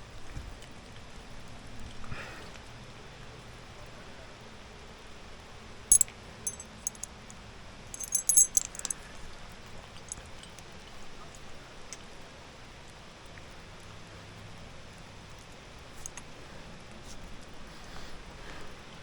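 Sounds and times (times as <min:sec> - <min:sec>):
metal climbing gear clinking: 0:05.9 - 0:07.3, 0:08.0 - 0:09.0.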